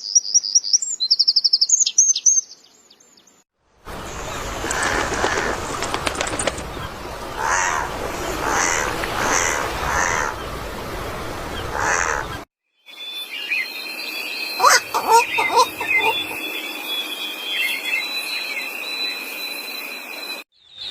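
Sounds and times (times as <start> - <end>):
bird cawing: 4.4 - 10.4, 11.6 - 12.4, 14.6 - 16.4
bird whistled calls: 14.6 - 19.2.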